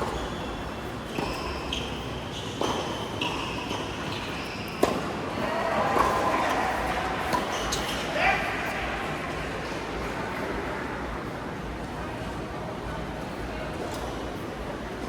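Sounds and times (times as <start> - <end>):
shoes squeaking on court floor: 0.0 - 5.2, 7.3 - 8.2
racket hitting shuttlecock: 4.8 - 5.1, 6.0 - 8.1.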